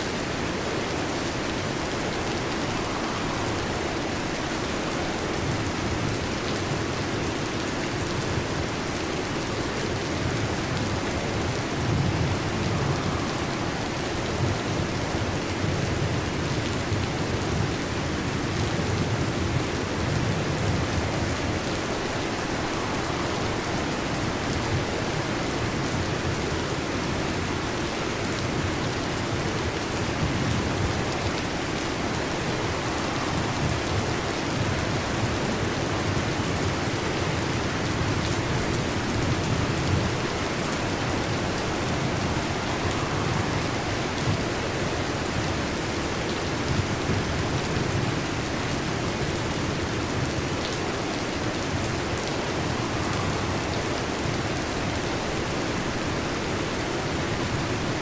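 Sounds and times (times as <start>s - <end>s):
heavy rain on a metal roof: 0.0s - 58.0s.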